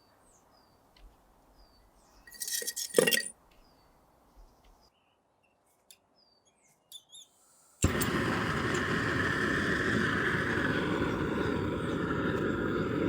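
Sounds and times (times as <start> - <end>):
metallic clinking and scraping: 2.3 - 3.3
faint bird chirps: 3.6 - 7.8.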